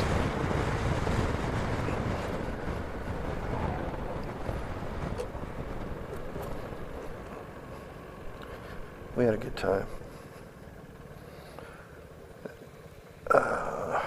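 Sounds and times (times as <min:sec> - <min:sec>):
wind rushing over microphone: 0:00.0 - 0:08.8
scooter engine: 0:00.0 - 0:14.0.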